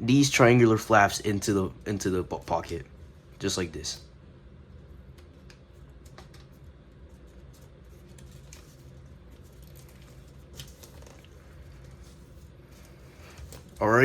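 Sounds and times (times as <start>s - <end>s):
steady low hum: 0.0s - 14.0s
paper crinkling: 6.0s - 14.0s.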